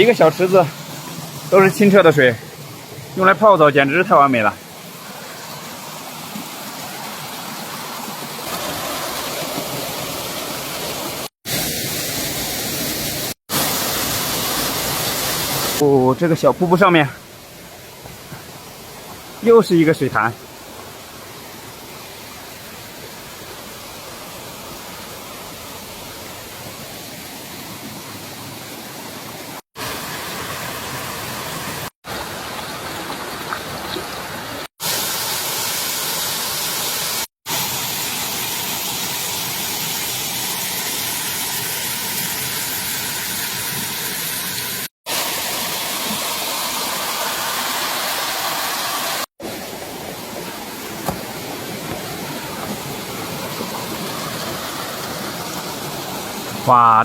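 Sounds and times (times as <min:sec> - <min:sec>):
water rushing down rocky stream: 0:00.0 - 0:57.0.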